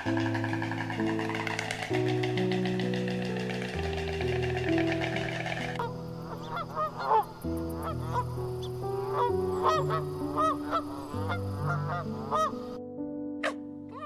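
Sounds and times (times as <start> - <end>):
birds honking: 0.0 - 12.8
background music with sustained notes: 0.0 - 14.0.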